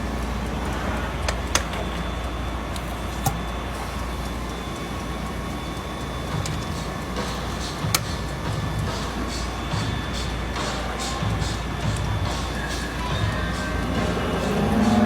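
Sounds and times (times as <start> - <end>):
machinery droning: 0.0 - 15.0.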